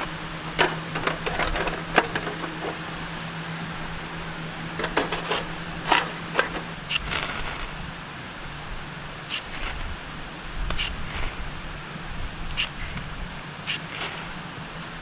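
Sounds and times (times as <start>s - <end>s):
camp cookware clinking: 0.0s - 7.6s.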